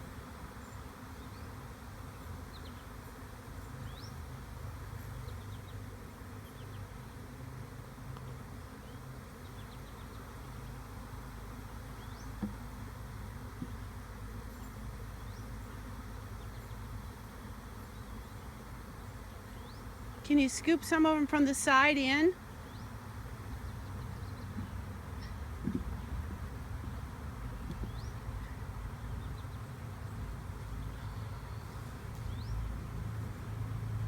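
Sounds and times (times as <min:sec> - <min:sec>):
bee swarm buzzing: 0:00.0 - 0:30.9
small knocks: 0:25.6 - 0:26.4.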